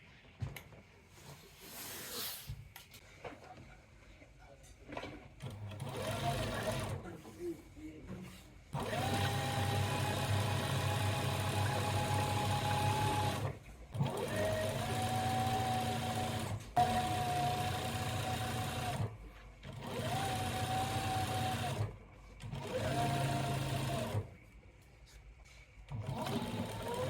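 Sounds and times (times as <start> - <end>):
sewing machine stitching: 5.4 - 7.1, 8.8 - 24.3, 25.9 - 27.0.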